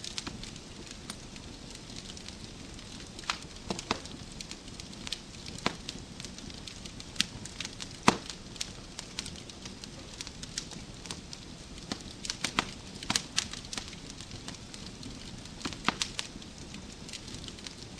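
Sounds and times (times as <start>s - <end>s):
wood fire crackling: 0.0s - 17.9s.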